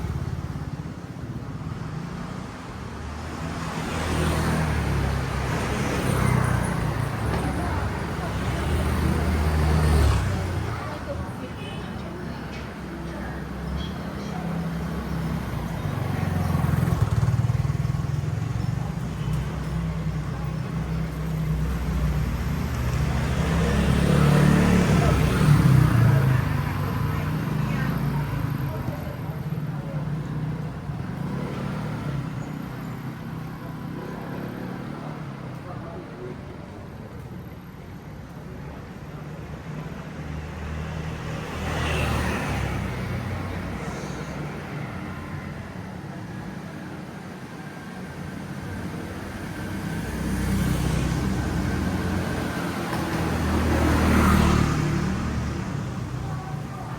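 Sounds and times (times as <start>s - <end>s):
traffic rumble of passing cars: 0.0s - 56.9s
vehicle passing by: 21.5s - 29.0s, 49.3s - 56.9s.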